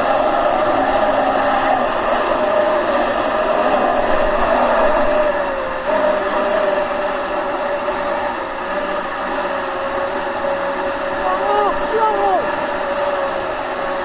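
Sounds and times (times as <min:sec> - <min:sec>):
jet kayak motor whining: 0:00.0 - 0:14.0
water rushing: 0:00.0 - 0:14.0.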